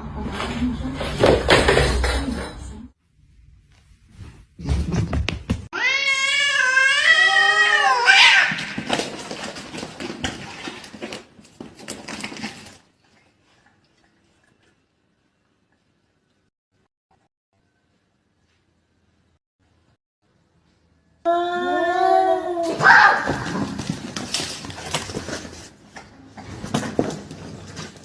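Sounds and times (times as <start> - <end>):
cat yowling: 5.7 - 8.6
cats scuffling: 8.2 - 12.8, 23.2 - 28.0.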